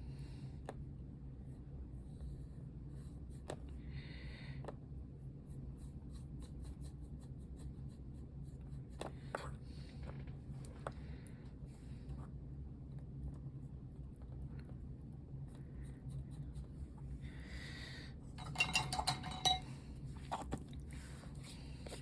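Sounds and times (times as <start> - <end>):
brush scratching strokes: 5.2 - 9.1, 13.6 - 17.0.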